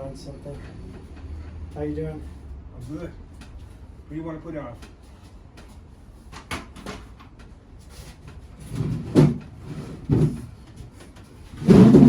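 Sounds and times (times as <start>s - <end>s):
loud bumps: 11.6s - 12.0s.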